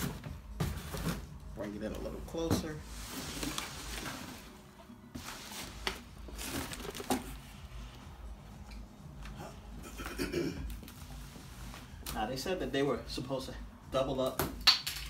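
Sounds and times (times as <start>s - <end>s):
cardboard box rustling and scraping: 5.2s - 7.4s.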